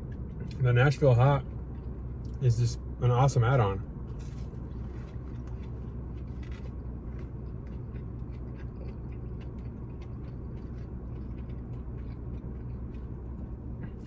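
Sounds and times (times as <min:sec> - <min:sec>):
low hum: 0:00.0 - 0:14.0
mouth clicks and chewing: 0:04.3 - 0:14.0.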